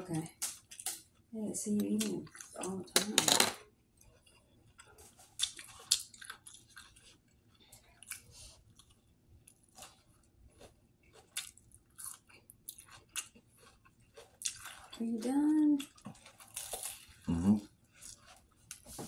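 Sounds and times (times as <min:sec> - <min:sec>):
man chewing with mouth clicks: 0:04.0 - 0:15.0, 0:15.8 - 0:18.8.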